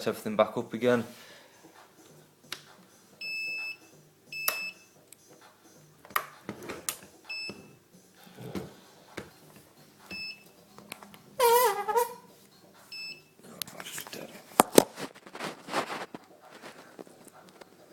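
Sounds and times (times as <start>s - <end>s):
low-battery warning beeps: 3.2s - 5.0s, 7.2s - 7.8s, 10.1s - 10.5s, 12.9s - 13.3s.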